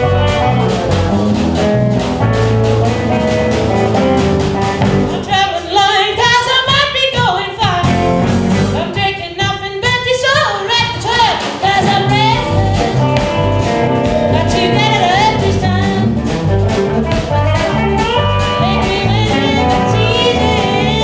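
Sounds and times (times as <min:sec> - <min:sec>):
drum beat: 0:00.0 - 0:21.0
live band playing: 0:00.0 - 0:21.0
women singing with vibrato: 0:05.1 - 0:16.2, 0:18.4 - 0:21.0.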